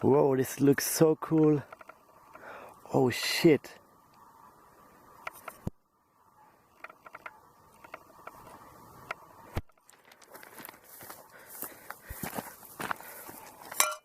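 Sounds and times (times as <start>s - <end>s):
footsteps: 9.5s - 14.0s.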